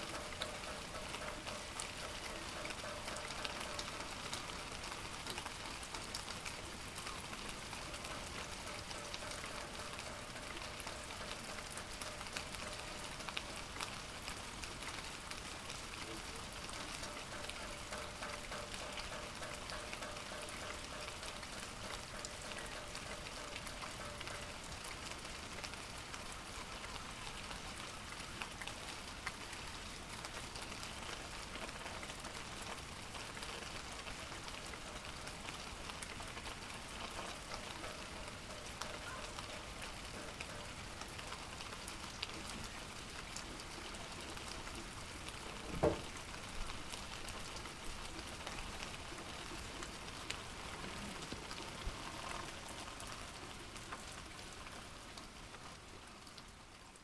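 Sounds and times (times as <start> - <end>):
steady rain falling: 0.0 - 57.0
short knock: 45.6 - 46.1.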